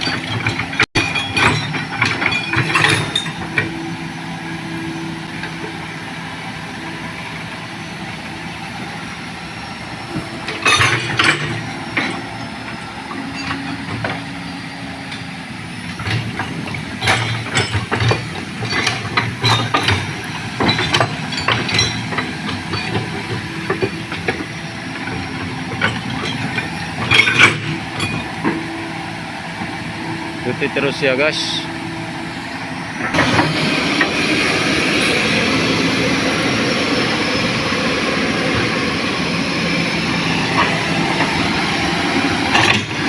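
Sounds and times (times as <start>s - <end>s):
knocks and rattles: 0.0s - 3.8s, 15.9s - 28.7s
heavy diesel machinery running: 0.0s - 43.0s.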